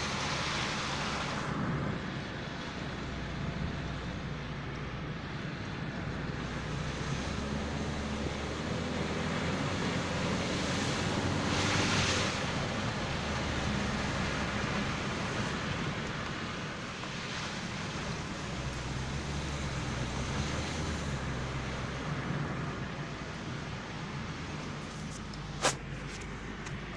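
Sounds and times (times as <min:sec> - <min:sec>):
engine running: 0:18.4 - 0:26.9.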